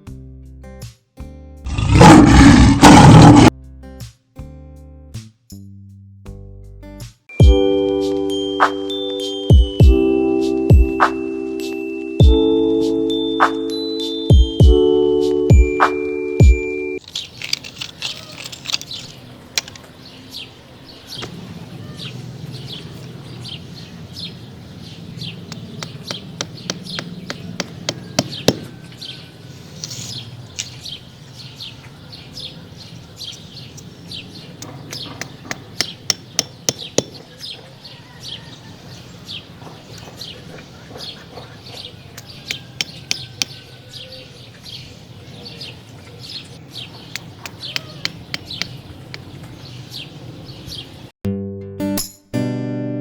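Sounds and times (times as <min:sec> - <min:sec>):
small birds chirping: 0:17.0 - 0:51.1.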